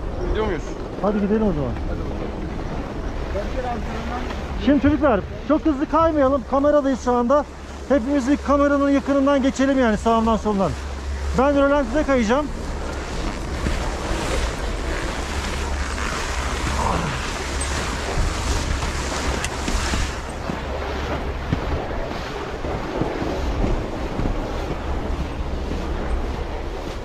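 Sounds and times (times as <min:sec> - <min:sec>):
wind buffeting microphone: 0:00.0 - 0:27.0
skis hissing and scraping snow: 0:11.3 - 0:20.8.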